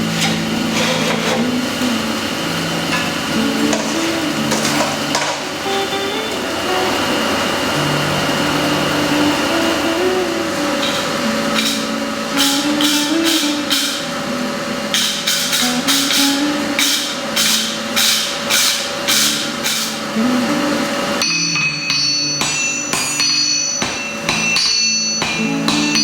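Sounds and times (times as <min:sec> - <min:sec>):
background music with melody: 0:00.0 - 0:26.0
high ringing tones: 0:00.0 - 0:26.0
hammer blows on steel: 0:09.2 - 0:14.3, 0:14.9 - 0:20.1.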